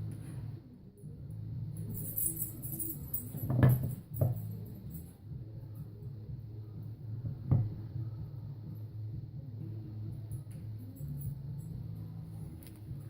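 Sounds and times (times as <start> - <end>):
steady low hum: 0.0 - 13.0
hard objects knocking: 3.3 - 4.5, 7.5 - 7.8.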